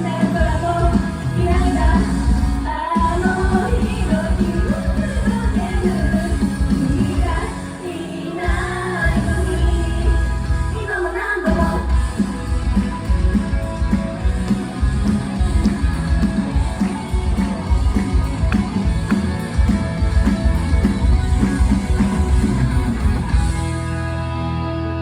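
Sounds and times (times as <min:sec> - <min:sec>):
music with driving beat: 0:00.0 - 0:10.8, 0:11.5 - 0:24.8.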